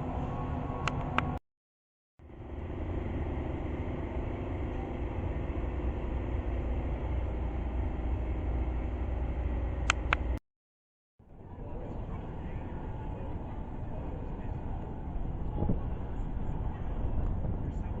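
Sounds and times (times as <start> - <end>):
low background rumble: 2.2 - 10.4.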